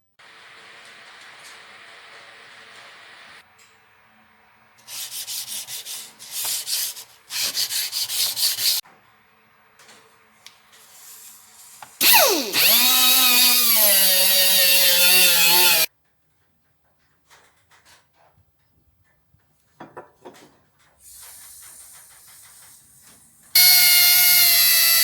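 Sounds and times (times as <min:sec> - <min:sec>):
hand sanding: 0:04.8 - 0:08.8
power tool whining: 0:12.0 - 0:15.9, 0:23.6 - 0:25.0.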